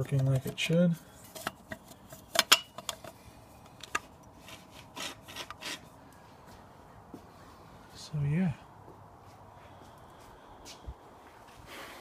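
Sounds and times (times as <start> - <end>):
rubbing and scraping: 4.4 - 6.0.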